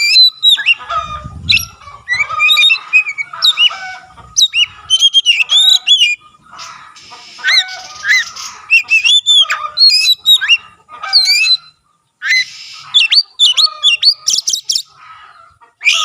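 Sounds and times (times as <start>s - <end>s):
bird singing whistled notes: 0.0s - 0.8s, 4.4s - 6.2s, 7.4s - 10.6s.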